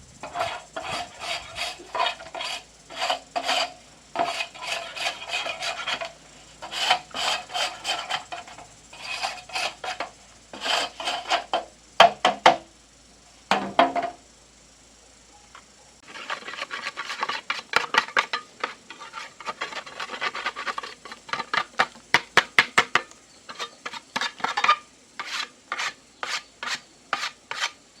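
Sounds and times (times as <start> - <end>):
hand tool scraping hard surface: 0.2 - 11.7, 16.0 - 27.8.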